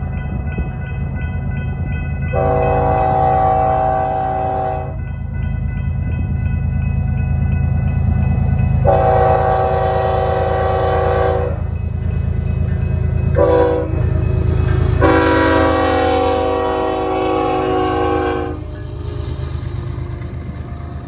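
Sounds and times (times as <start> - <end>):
locomotive air horn blasts: 2.3 - 5.0, 8.8 - 11.6, 13.4 - 14.0, 15.0 - 18.7.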